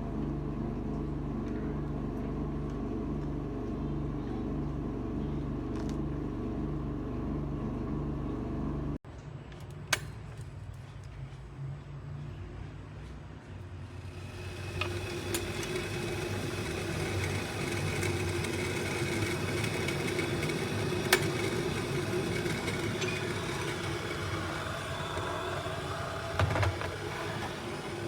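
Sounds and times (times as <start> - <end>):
kettle rumbling hiss: 13.9 - 28.0.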